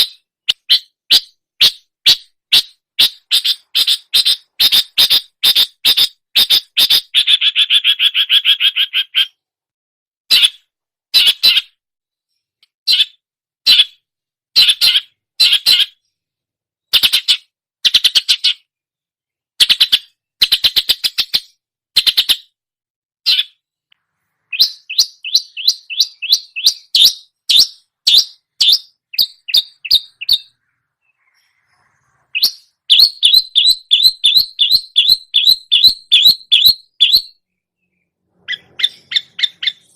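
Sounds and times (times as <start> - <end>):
bird singing harsh chattering notes: 0.0 - 9.4, 14.6 - 16.2, 19.6 - 22.6, 23.2 - 39.9.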